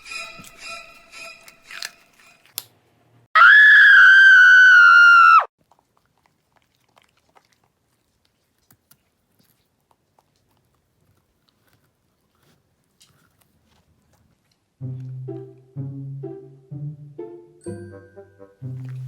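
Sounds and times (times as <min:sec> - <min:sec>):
bell-like chime notes: 0:17.6 - 0:18.4.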